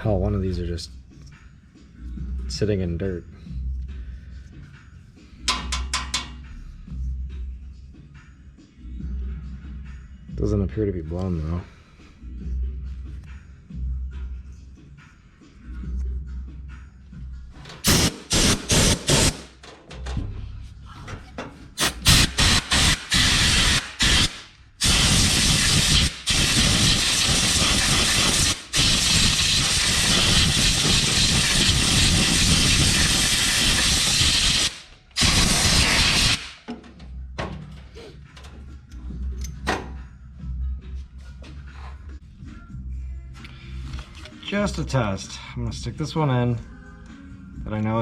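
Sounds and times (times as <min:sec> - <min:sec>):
pressurised spray hissing: 0:17.9 - 0:19.5, 0:21.8 - 0:36.6.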